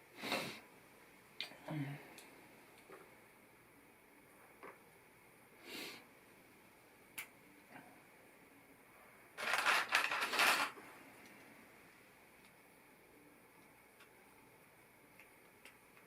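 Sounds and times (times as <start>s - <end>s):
plastic pieces clicking: 9.4s - 10.8s
plastic pieces rattling: 9.4s - 10.8s.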